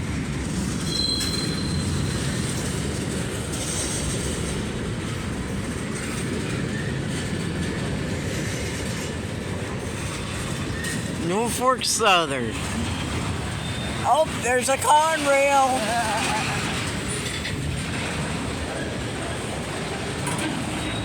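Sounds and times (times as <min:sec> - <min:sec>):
train wheels rumbling on rail: 0:00.0 - 0:21.0
high wheel squeal: 0:00.8 - 0:02.6, 0:12.6 - 0:18.2.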